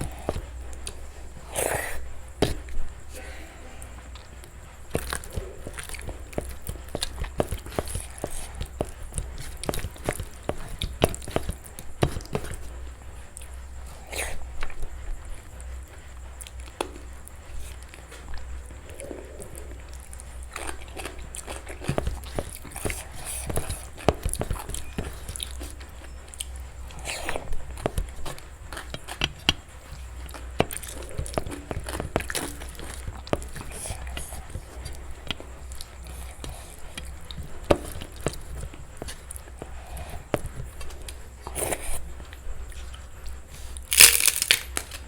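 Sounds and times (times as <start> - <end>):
soft chewing: 0.0 - 45.0
crisp food crunching: 42.8 - 45.0.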